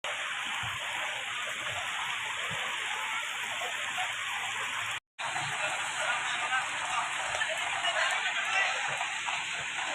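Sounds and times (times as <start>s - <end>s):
rain falling: 0.1s - 9.9s.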